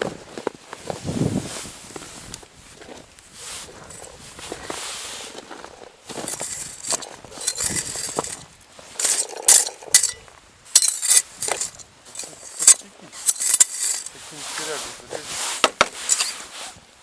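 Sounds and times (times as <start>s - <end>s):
snow and ice crunching: 0.0s - 17.0s
sharp ice clinks: 6.1s - 14.2s, 16.0s - 16.4s.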